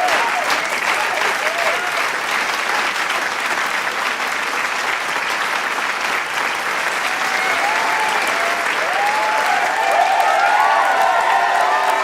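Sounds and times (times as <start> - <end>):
crowd clapping: 0.0 - 12.0
voices whooping: 7.2 - 12.0.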